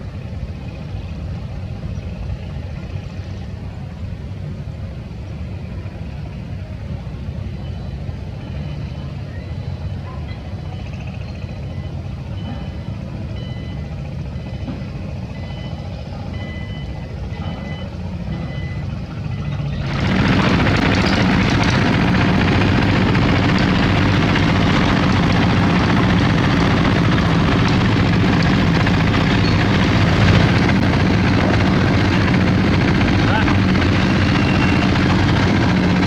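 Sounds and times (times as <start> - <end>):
loud diesel engine: 0.0 - 36.0
reversing alarm beeping: 7.6 - 19.8, 33.8 - 35.3
low engine rumble: 16.0 - 36.0.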